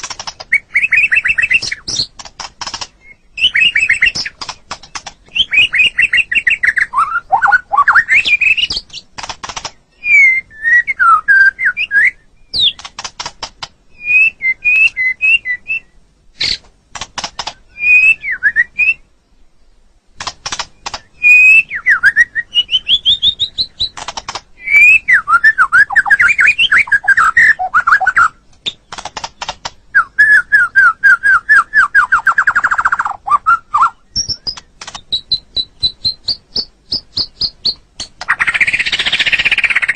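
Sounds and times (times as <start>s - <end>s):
bird clicking notes: 0.0s - 6.4s, 8.4s - 9.8s, 12.6s - 13.8s, 17.0s - 17.6s, 20.2s - 21.1s, 23.8s - 24.5s, 28.5s - 29.8s, 34.2s - 39.9s
bird fast trill: 0.0s - 13.0s, 20.5s - 39.9s
bird singing whistled phrases: 0.5s - 2.1s, 3.0s - 4.4s, 5.3s - 9.0s, 9.9s - 12.8s, 14.0s - 16.6s, 17.7s - 19.1s, 21.1s - 24.0s, 24.6s - 28.4s, 29.9s - 39.9s.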